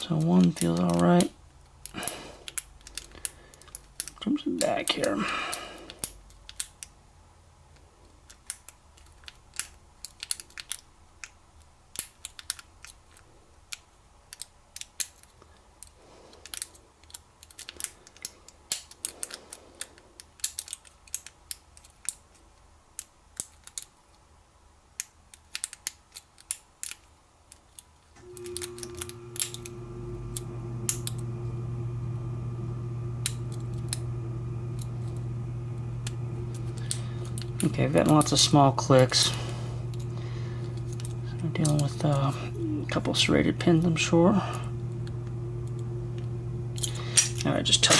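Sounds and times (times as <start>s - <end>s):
lock pick clicking: 5.5s - 7.0s, 8.3s - 22.3s, 25.0s - 29.7s, 30.3s - 31.2s, 45.0s - 47.5s
low hum: 28.2s - 47.9s.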